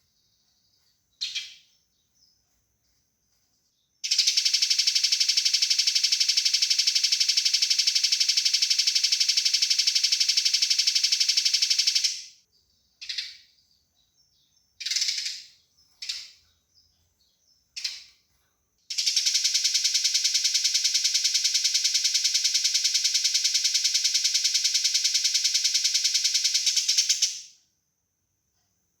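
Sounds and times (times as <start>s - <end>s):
sparrows chattering: 0.0s - 2.6s, 4.0s - 18.3s, 18.9s - 27.5s
sparrow single calls: 1.2s - 1.7s.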